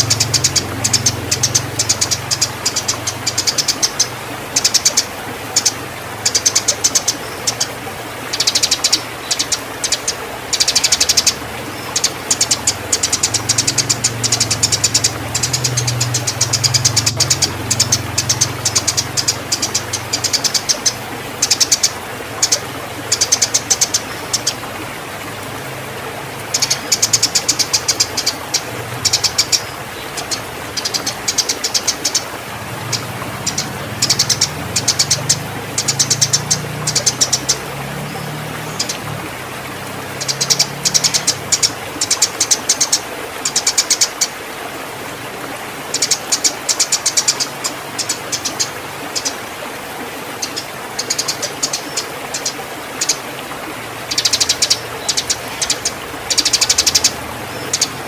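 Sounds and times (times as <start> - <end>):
sparrows chattering chirps: 0.0 - 7.7, 8.3 - 24.6, 26.5 - 39.1, 54.1 - 58.0.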